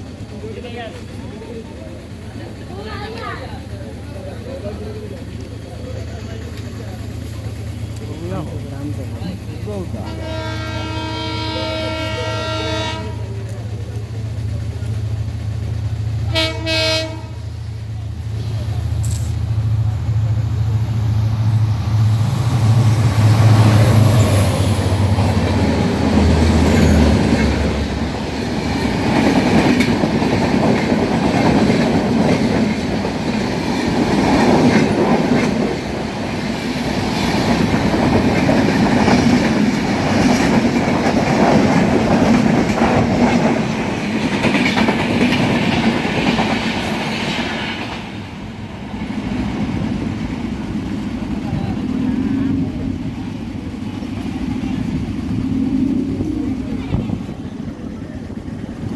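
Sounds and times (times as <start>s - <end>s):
locomotive low rumble: 0.0s - 58.9s
train horn blast: 10.0s - 13.4s, 16.3s - 17.6s
wheels clattering over rail joints: 23.2s - 48.3s.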